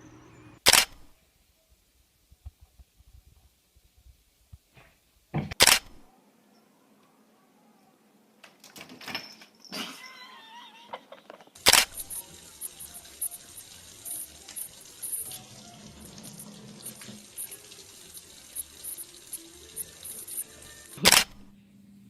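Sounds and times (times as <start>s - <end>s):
running water rushing: 11.6s - 21.5s.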